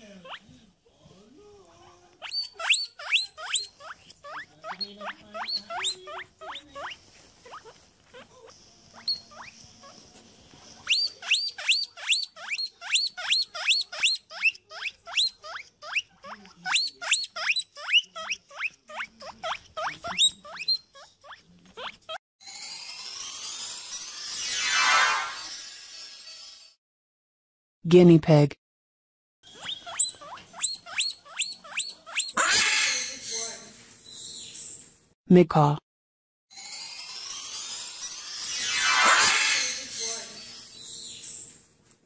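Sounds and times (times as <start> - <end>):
guinea pig wheeking: 0.0 - 0.5, 2.2 - 10.1, 10.7 - 22.2, 29.5 - 33.5.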